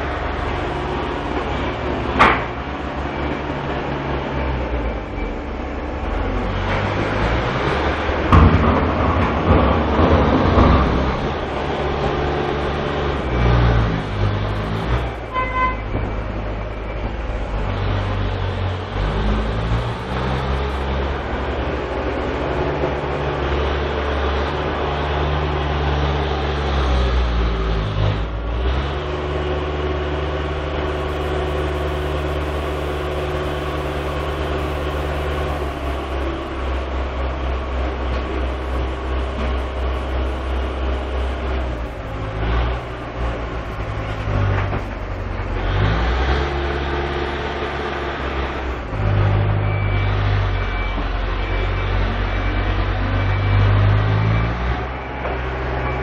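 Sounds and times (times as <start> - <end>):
diesel engines revving: 0.0 - 56.0
short beep: 30.9 - 36.5, 49.6 - 56.0.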